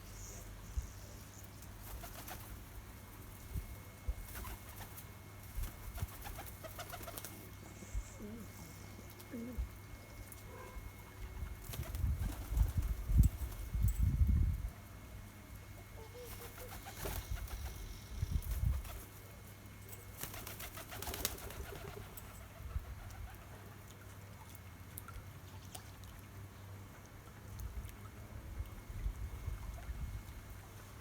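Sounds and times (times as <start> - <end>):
dove cooing: 6.3 - 9.8, 15.9 - 18.3.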